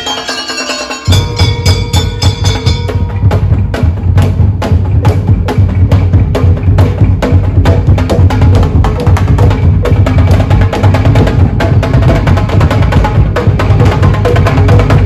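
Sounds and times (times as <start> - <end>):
held melodic tones: 0.0 - 3.6
wooden percussion and drums: 0.0 - 15.0
heavy bass pulse: 1.1 - 15.0.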